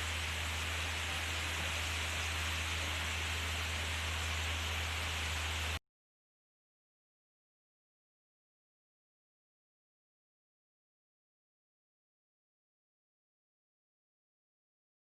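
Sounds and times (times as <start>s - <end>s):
falling water rushing: 0.0s - 5.8s.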